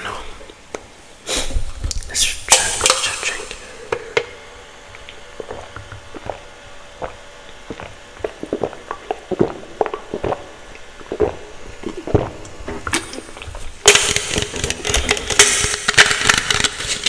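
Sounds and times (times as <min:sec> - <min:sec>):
wet mouth clicks and smacks: 0:04.9 - 0:17.0.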